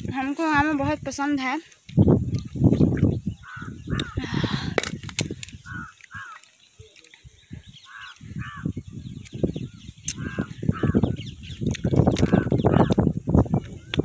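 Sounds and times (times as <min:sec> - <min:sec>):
bird calling: 0:02.3 - 0:14.0
rustling and chewing: 0:04.9 - 0:08.3.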